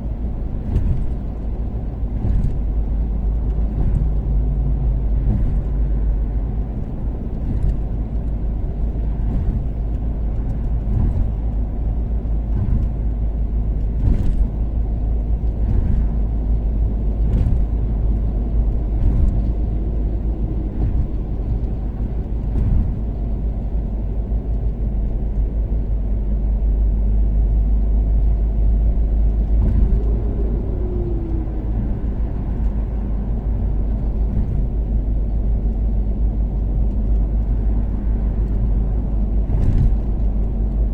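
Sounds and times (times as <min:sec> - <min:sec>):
car engine and road rumble: 0:00.0 - 0:40.9
thumps from road surface: 0:00.6 - 0:01.4, 0:09.1 - 0:10.0, 0:10.8 - 0:11.5, 0:12.5 - 0:13.1, 0:13.9 - 0:14.6, 0:15.6 - 0:16.2, 0:17.2 - 0:17.8, 0:22.4 - 0:23.2, 0:29.6 - 0:30.2, 0:33.9 - 0:34.8, 0:39.4 - 0:40.4.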